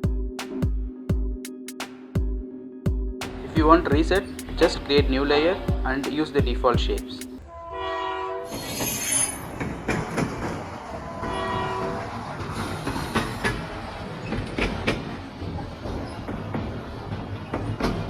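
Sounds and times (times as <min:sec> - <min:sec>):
train horn: 0:07.4 - 0:09.5, 0:11.0 - 0:13.2
train wheels rumbling and clacking: 0:08.6 - 0:18.0.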